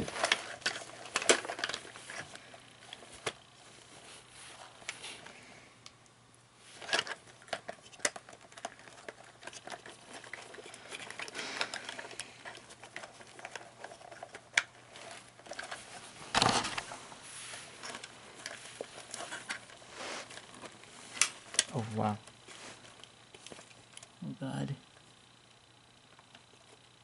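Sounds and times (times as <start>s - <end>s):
plastic parts clicking: 0.0s - 3.4s, 6.8s - 16.8s
plastic parts clattering: 0.0s - 3.5s, 6.8s - 17.0s, 17.7s - 24.1s
rustling of handled parts: 0.0s - 6.0s, 6.6s - 24.2s.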